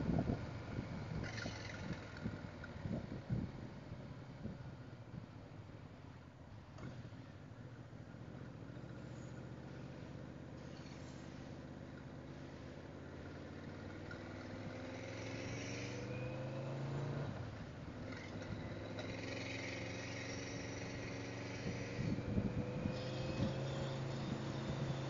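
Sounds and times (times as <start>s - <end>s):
motorcycle engine accelerating: 0.0s - 4.7s, 12.4s - 25.0s.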